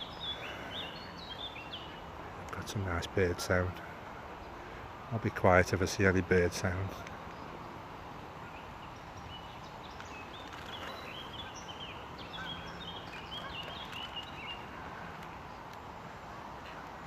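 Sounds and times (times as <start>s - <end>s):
outdoor background hiss: 0.0s - 17.0s
small birds chirping: 0.0s - 17.0s.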